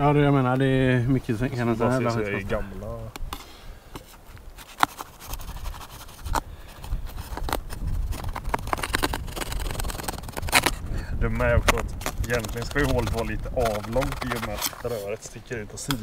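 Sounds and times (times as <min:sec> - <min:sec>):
hands scraping tent fabric: 0:04.0 - 0:06.4, 0:07.0 - 0:10.8, 0:11.4 - 0:15.3.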